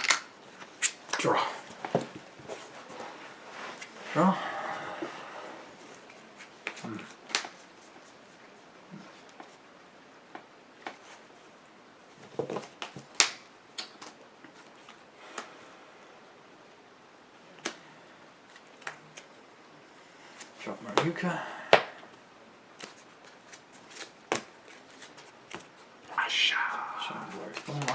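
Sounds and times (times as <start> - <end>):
cards clicking and tapping on table: 27.5 - 27.9.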